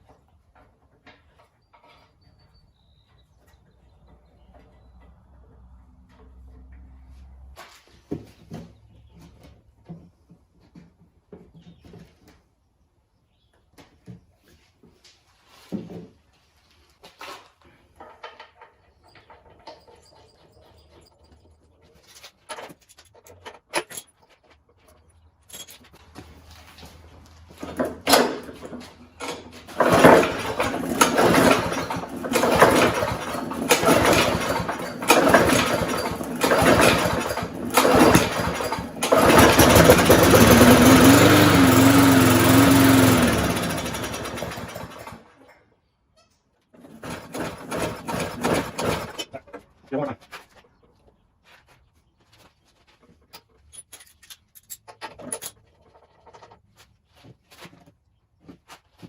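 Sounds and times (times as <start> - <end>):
recoil starter pulls: 18.0 - 45.6, 46.7 - 49.6
lawnmower engine running unevenly: 26.2 - 45.4, 46.8 - 49.4.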